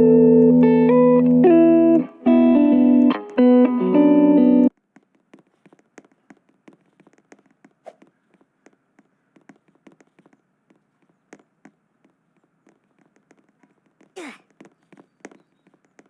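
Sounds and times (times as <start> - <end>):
guitar music: 0.0 - 4.7
light taps and clicks: 4.7 - 16.0.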